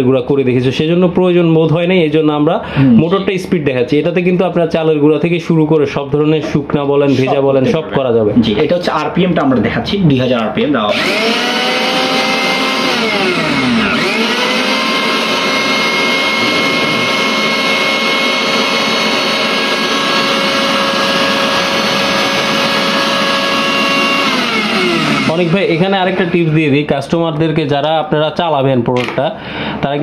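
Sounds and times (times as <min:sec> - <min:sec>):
mixer grinder motor whining: 0:10.8 - 0:26.9.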